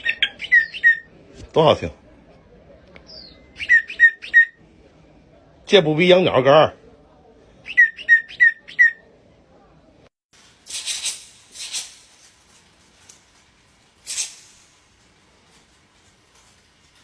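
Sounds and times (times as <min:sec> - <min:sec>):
dry rattling hisses: 0:10.3 - 0:17.0.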